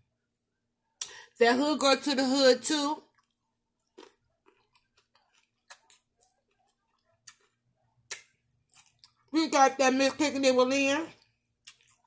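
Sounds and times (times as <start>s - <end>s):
chewing with wet mouth clicks: 3.1s - 9.3s, 11.6s - 12.0s.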